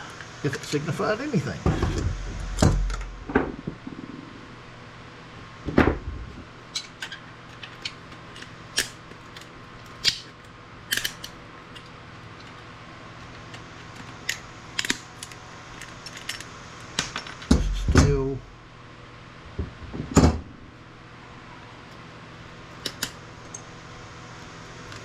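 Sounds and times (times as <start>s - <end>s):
faint steady hum: 0.0s - 25.0s
sharp clicks and snaps: 6.8s - 12.6s.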